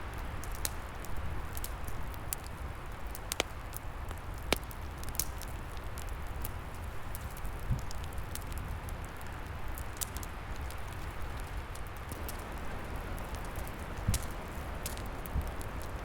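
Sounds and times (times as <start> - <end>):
wood fire crackling: 0.0 - 16.0
wind in trees: 6.5 - 16.0.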